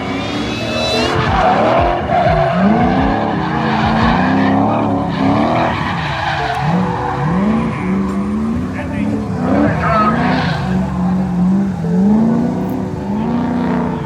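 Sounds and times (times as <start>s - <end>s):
car engine revving hard: 0.0s - 14.0s
tyres squealing: 0.0s - 14.0s.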